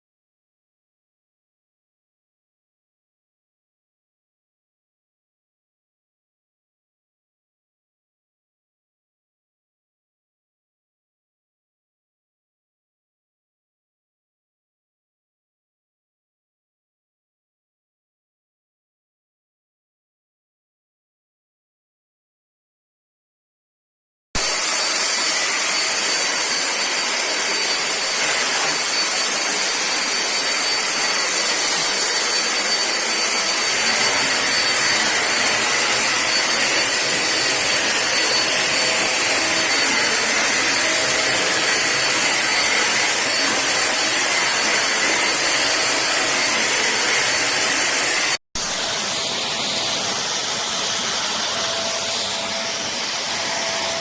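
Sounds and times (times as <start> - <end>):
vacuum cleaner running: 24.4 - 54.0.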